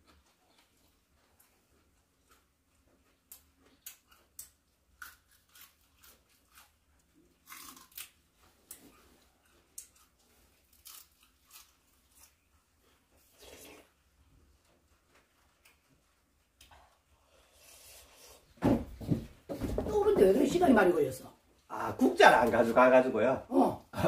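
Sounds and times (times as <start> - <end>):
crunchy cabbage chewing: 0.0 - 18.3.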